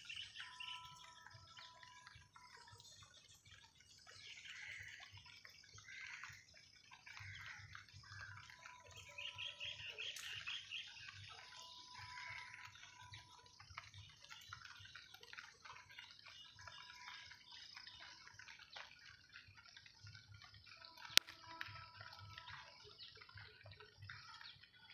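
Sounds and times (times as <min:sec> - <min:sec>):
bird trill: 0:00.0 - 0:02.3, 0:08.2 - 0:13.3
small birds chirping: 0:00.0 - 0:24.9.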